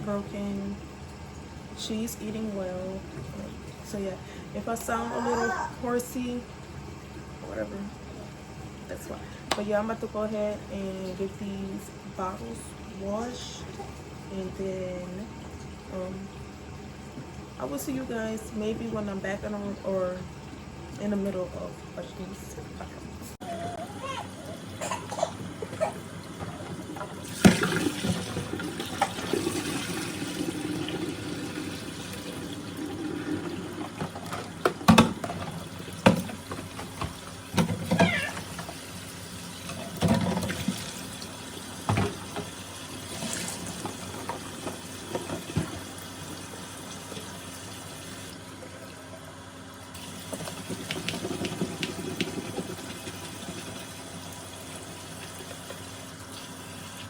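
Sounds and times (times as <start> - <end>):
water running from tap: 23.4 - 57.0
bottles clattering against sink: 33.8 - 38.8, 39.7 - 40.9, 41.8 - 42.5.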